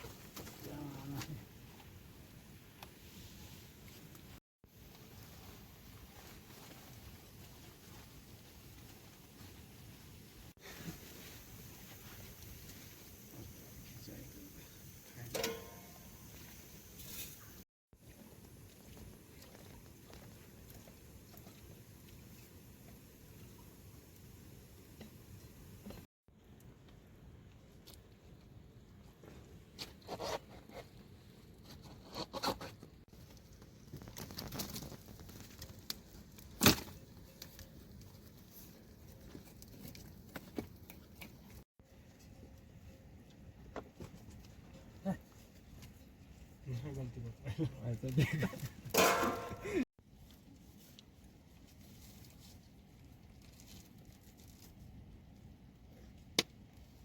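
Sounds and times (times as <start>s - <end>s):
rustling and scraping: 29.1s - 46.6s.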